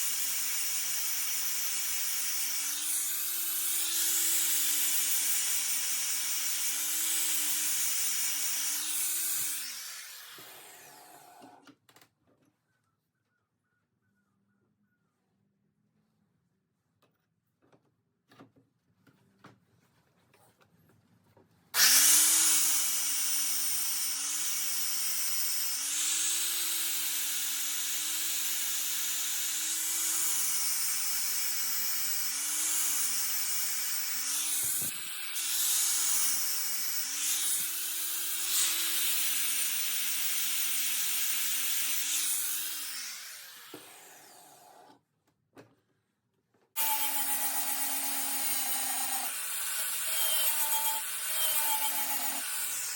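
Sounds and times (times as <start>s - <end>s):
angle grinder grinding steel: 0.0s - 11.6s, 21.8s - 44.9s, 46.8s - 52.9s.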